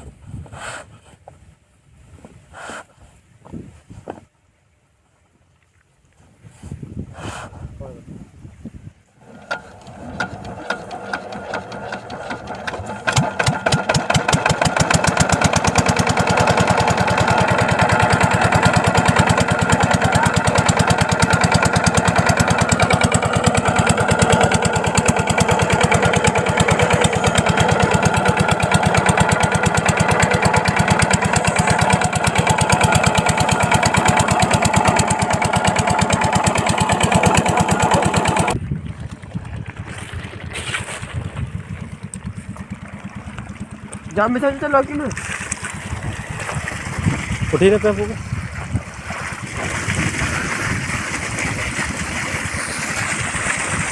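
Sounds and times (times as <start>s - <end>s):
diesel pump engine running: 9.2s - 53.9s.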